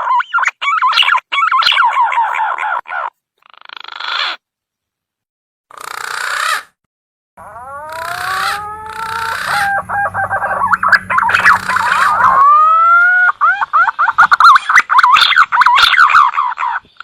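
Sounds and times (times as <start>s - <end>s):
hoarse bird lure calls: 7.4s - 17.0s.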